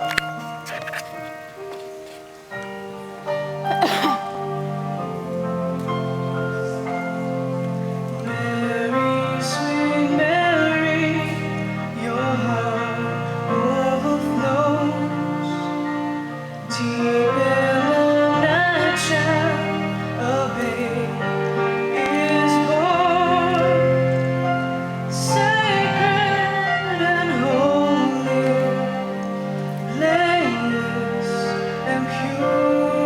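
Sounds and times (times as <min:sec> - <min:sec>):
sustained accompaniment chords: 0:00.0 - 0:33.0.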